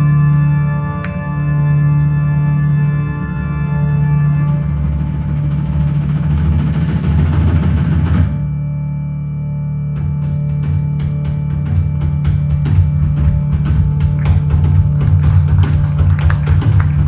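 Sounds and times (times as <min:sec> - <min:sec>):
held low note: 0:00.0 - 0:17.0
drum beat: 0:04.5 - 0:08.4, 0:10.0 - 0:17.0.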